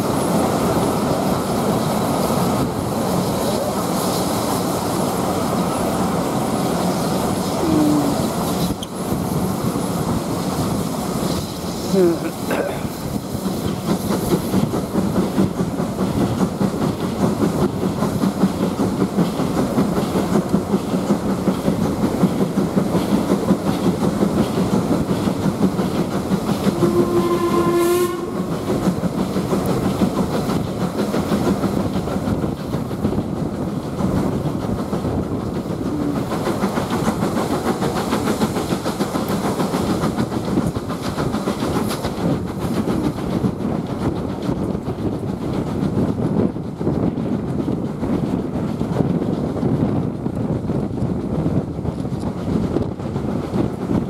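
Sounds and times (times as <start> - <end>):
train carriage rumble: 0.0 - 54.0
wheels clicking over rail joints: 12.5 - 54.0
steam train whistle: 26.7 - 28.6.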